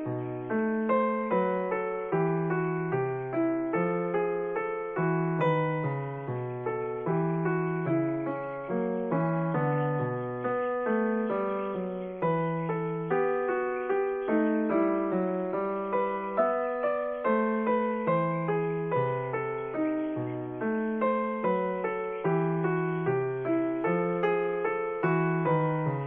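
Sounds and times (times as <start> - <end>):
gentle piano melody: 0.0 - 26.0.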